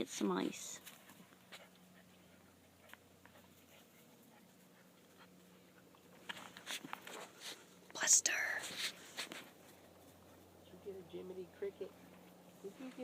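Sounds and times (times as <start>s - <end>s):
faint steady hum: 0.0s - 13.0s
puppies ticking and rustling: 0.5s - 8.0s.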